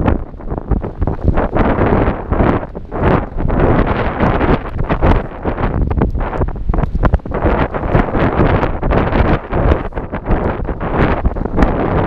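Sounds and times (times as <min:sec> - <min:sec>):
gusty wind buffeting microphone: 0:00.0 - 0:12.0
small sharp ticks: 0:04.4 - 0:11.8.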